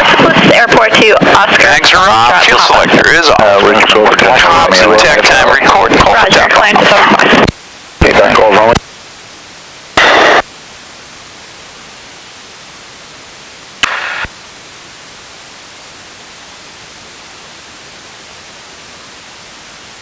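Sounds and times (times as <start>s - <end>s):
radio transmission bursts: 0.0s - 8.8s, 10.0s - 10.5s, 13.8s - 14.4s
radio intercom hiss: 0.0s - 20.0s
radio click: 10.0s - 10.5s, 13.8s - 14.4s.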